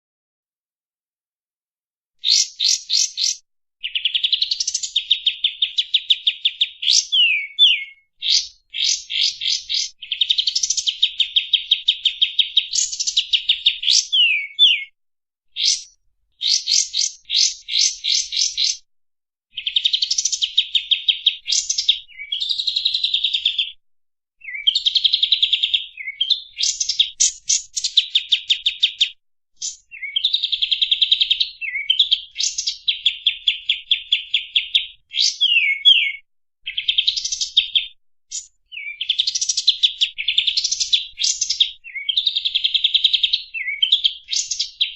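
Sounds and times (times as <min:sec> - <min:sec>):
bird singing rapid trills: 0:02.2 - 0:15.0, 0:15.6 - 0:18.8, 0:24.5 - 0:37.8.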